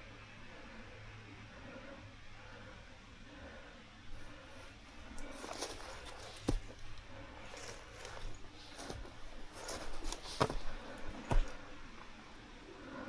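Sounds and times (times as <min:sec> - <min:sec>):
rustling: 0:04.2 - 0:12.2
footsteps on forest floor: 0:04.9 - 0:12.2.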